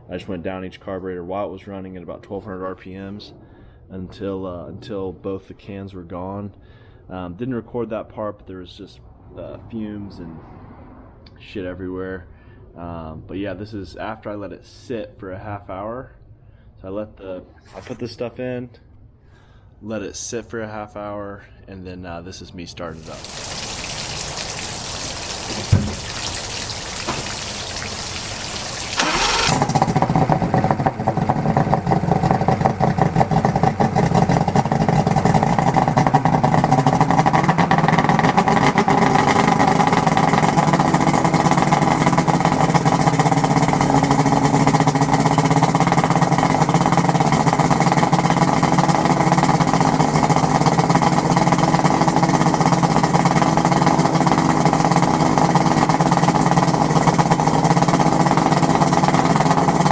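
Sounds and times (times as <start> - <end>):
outboard motor starting and running: 23.0 - 59.9.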